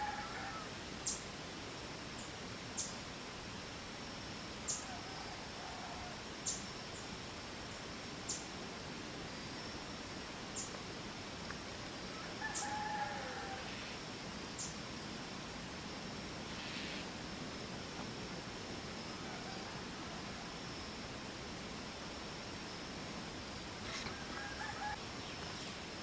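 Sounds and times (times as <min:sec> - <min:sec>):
distant rooster crowing: 0:00.0 - 0:00.8, 0:04.8 - 0:06.2, 0:12.1 - 0:14.0, 0:19.1 - 0:20.7, 0:23.8 - 0:26.0
steady hiss: 0:00.0 - 0:26.0
bird chirping: 0:23.8 - 0:26.0.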